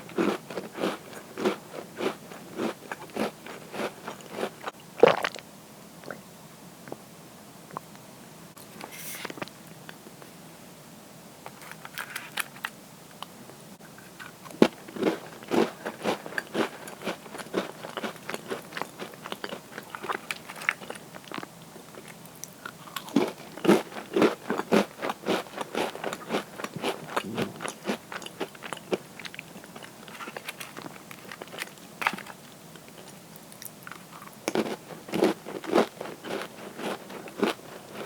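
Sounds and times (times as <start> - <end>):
cookies crunching while chewed: 0.0 - 5.4, 14.0 - 38.0.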